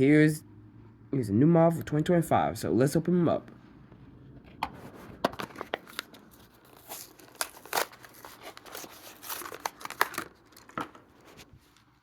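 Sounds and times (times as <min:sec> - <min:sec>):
plastic blister crinkling: 0:05.1 - 0:12.0
cardboard tearing: 0:05.4 - 0:11.5.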